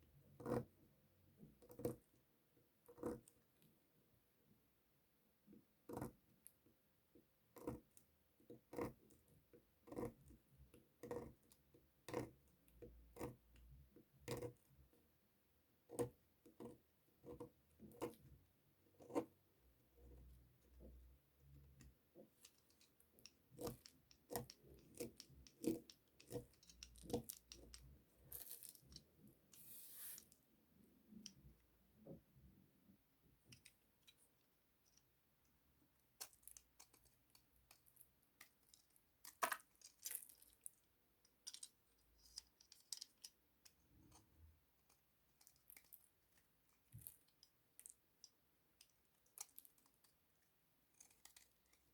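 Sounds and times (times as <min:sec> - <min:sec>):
soap clicks and crackles: 0:21.5 - 0:30.4, 0:36.0 - 0:51.9.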